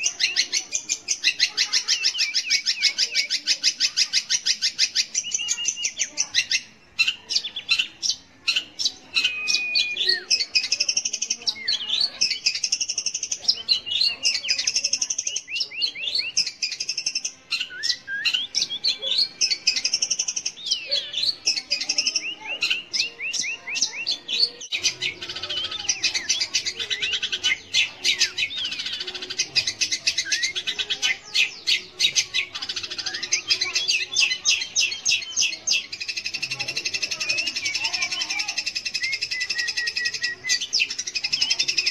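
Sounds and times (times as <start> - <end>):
bird chattering song: 0.0 - 41.9.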